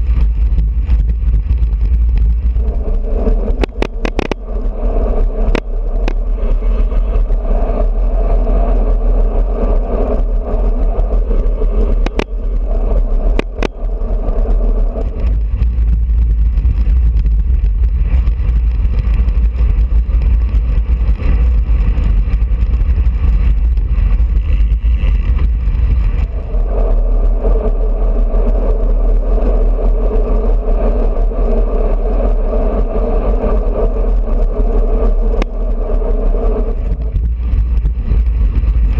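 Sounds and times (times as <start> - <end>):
bicycle tyre noise: 0.0 - 38.9
wind buffeting: 0.0 - 38.9
sharp clicks: 3.5 - 4.4, 13.3 - 13.9.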